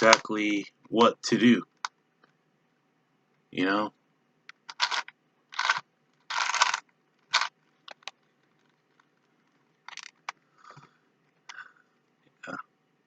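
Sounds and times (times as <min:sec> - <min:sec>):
puzzle cube clicks: 0:00.0 - 0:00.2, 0:04.5 - 0:08.2, 0:09.9 - 0:10.4
plastic puzzle cube turning: 0:04.6 - 0:10.4.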